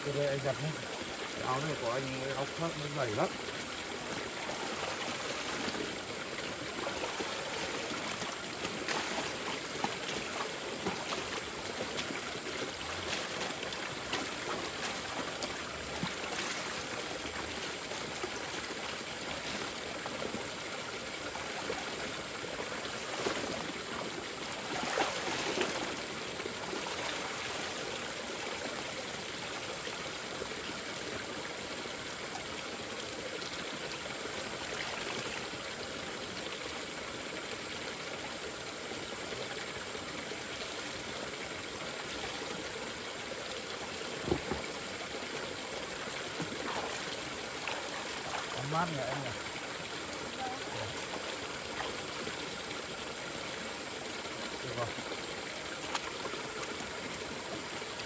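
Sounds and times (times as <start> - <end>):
mountain stream running: 0.0 - 58.0
splashes of water: 0.3 - 30.4, 41.8 - 58.0.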